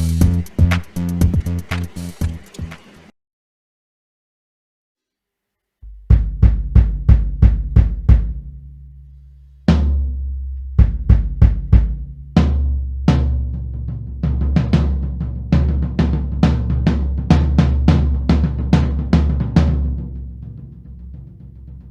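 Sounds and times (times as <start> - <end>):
heavy accented drum hits: 0.0 - 2.5, 5.9 - 8.5, 10.8 - 12.6
drum kit playing: 0.0 - 3.1, 5.9 - 8.5, 10.8 - 12.5.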